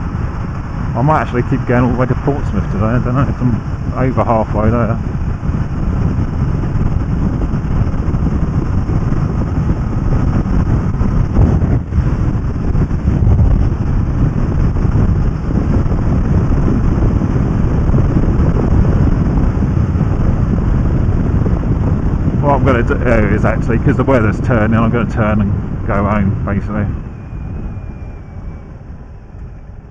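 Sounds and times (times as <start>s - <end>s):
road noise: 0.0s - 29.9s
wind rushing over microphone: 0.0s - 29.9s.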